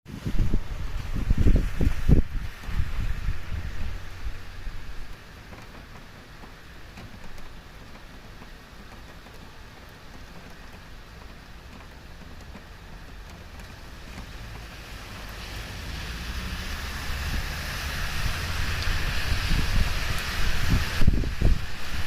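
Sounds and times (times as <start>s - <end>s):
heavy rain hissing: 0.1s - 22.0s
wind gusts buffeting microphone: 0.1s - 22.0s.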